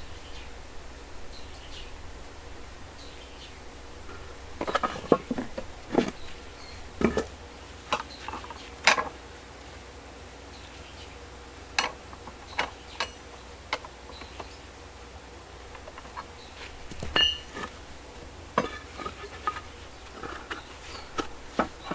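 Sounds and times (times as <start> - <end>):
steady low hum: 0.0 - 21.9
steel rebar knocking and clinking: 16.9 - 17.8.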